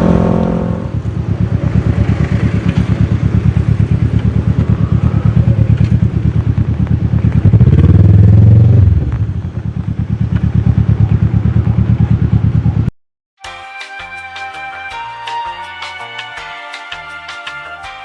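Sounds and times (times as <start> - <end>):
motorcycle engine running: 0.0 - 12.9
music: 13.4 - 18.0.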